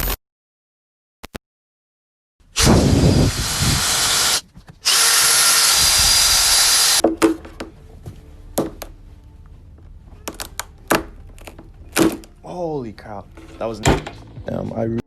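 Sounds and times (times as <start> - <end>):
power tool running: 2.6 - 7.0.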